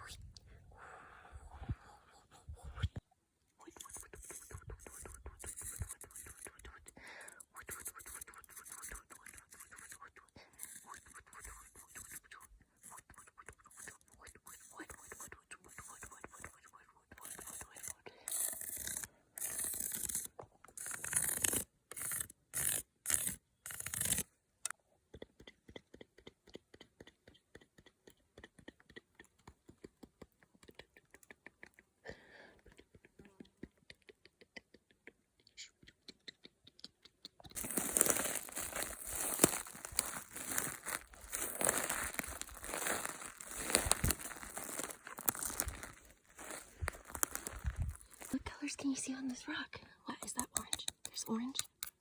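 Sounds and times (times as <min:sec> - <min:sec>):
sharp ticks: 0:03.6 - 0:32.0, 0:50.1 - 0:52.0
scratchy rubbing strokes: 0:07.6 - 0:16.6, 0:17.2 - 0:24.2
crinkling and crackling: 0:37.4 - 0:49.0.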